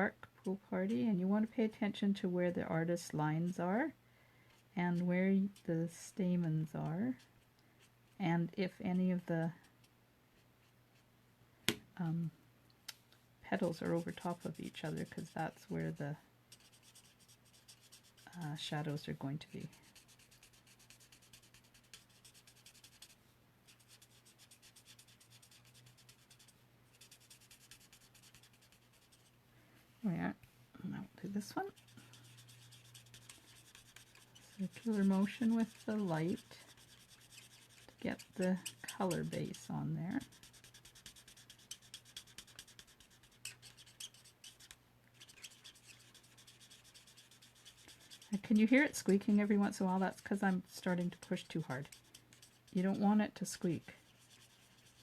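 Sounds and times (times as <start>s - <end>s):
marker scratching on card: 13.6s - 19.0s, 19.6s - 29.3s, 31.6s - 39.6s, 40.2s - 55.0s.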